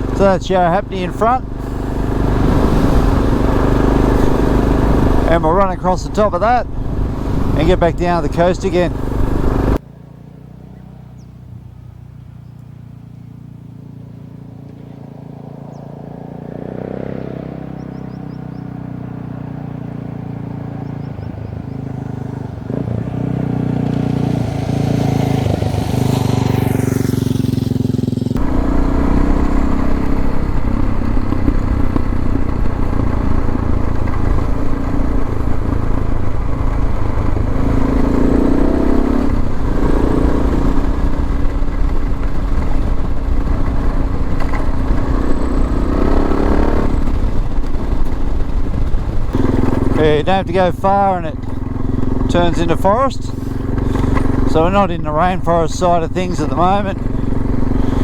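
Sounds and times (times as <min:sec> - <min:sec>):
motorcycle engine running: 0:00.0 - 0:58.0
wind buffeting on microphone: 0:01.6 - 0:08.4.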